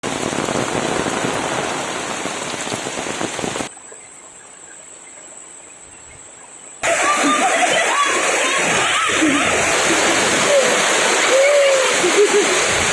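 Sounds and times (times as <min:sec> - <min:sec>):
heavy rain pouring: 0:00.0 - 0:03.7, 0:06.8 - 0:12.9.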